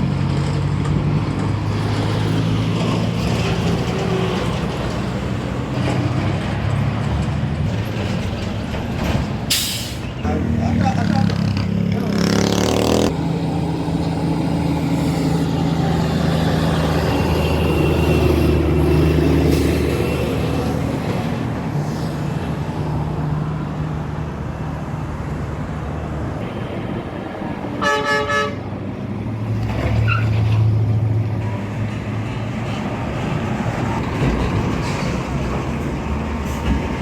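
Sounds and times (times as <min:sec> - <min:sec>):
vehicle horn tooting: 0:27.8 - 0:28.7.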